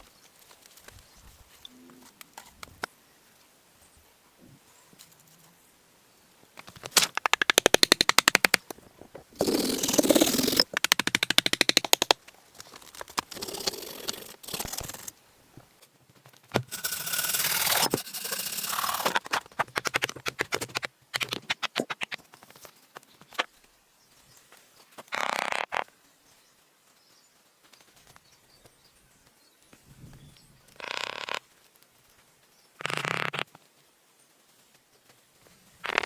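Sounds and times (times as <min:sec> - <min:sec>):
rapid scratchy scraping: 0:09.4 - 0:11.8, 0:13.0 - 0:15.1, 0:16.6 - 0:22.1.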